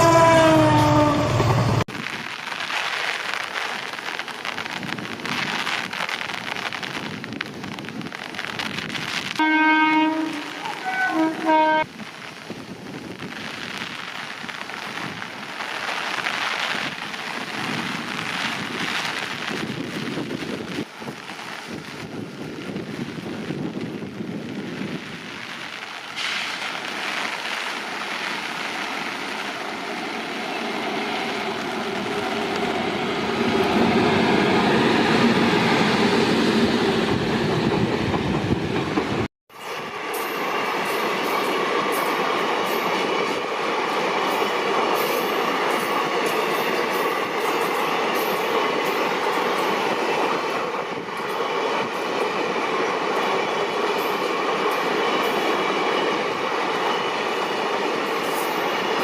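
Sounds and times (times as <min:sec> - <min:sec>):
train approaching: 0:00.0 - 0:01.9, 0:09.4 - 0:13.6, 0:20.9 - 0:59.0
steady rain: 0:01.5 - 0:36.2.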